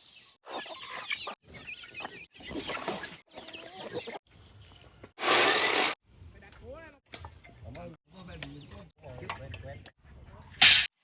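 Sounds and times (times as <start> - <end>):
chickens clucking: 0.5 - 4.2.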